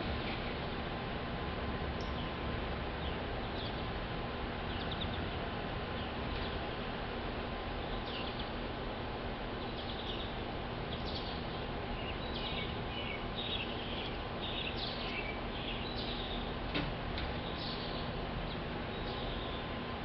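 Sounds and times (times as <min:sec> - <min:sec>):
steady outdoor hiss: 0:00.0 - 0:20.0
small birds chirping: 0:02.0 - 0:06.8, 0:07.7 - 0:08.7, 0:09.4 - 0:16.6, 0:17.3 - 0:19.8.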